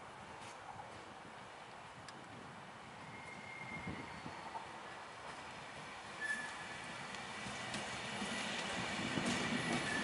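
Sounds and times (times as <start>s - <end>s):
train rumbling over tracks: 0.0s - 10.0s
thin steady train squeal: 2.8s - 10.0s
low knocks from train wheels: 7.1s - 10.0s.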